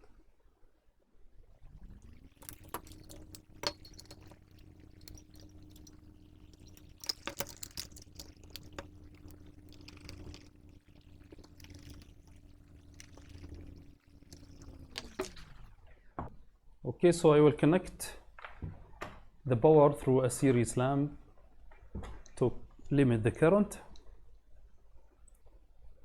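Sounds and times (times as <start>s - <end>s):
parts clicking and knocking: 1.7s - 15.7s
small electric motor humming: 1.7s - 15.8s.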